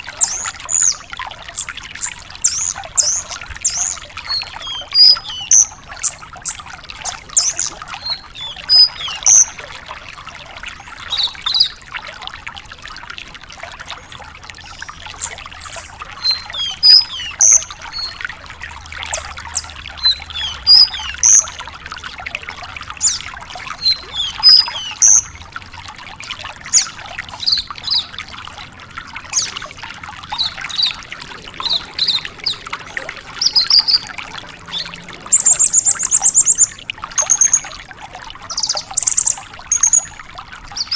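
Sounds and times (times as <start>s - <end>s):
lark singing: 7.4s - 9.6s, 16.2s - 18.2s, 20.0s - 21.5s, 23.8s - 25.3s.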